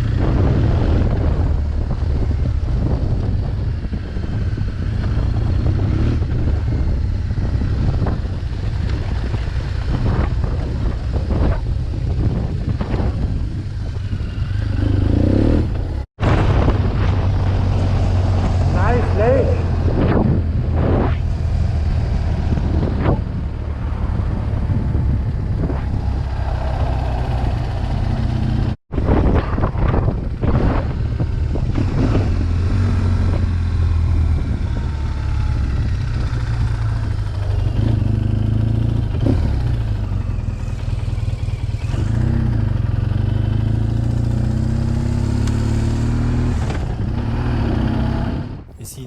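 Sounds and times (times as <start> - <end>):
motorcycle engine running: 0.0 - 20.7
wind noise: 0.0 - 49.0.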